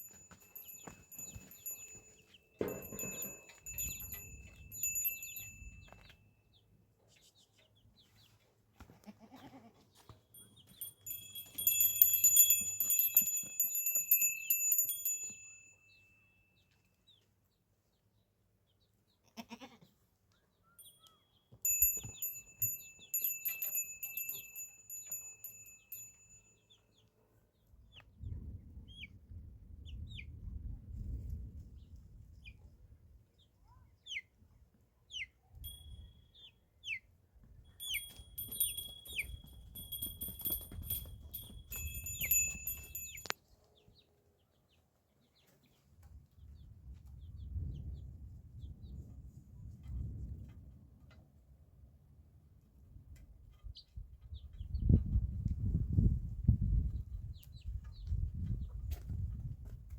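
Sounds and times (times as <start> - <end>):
goat bells jingling: 0.0 - 6.2, 10.3 - 16.8, 20.8 - 26.9, 35.6 - 36.5, 37.5 - 43.4.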